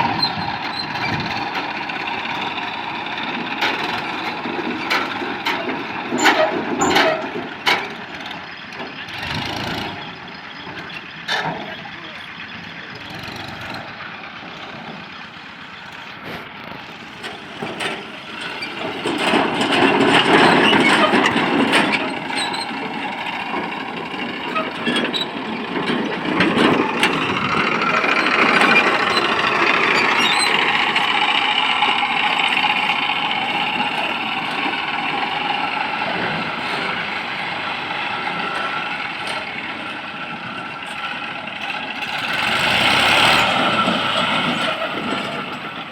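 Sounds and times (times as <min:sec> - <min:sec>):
tractor diesel engine under load: 0:00.0 - 0:45.9.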